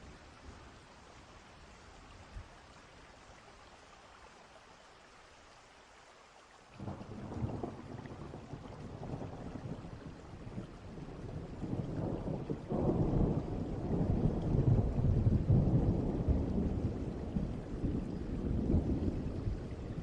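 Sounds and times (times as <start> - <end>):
steady rain: 0.0 - 20.0
distant thunder rumbling: 6.8 - 20.0.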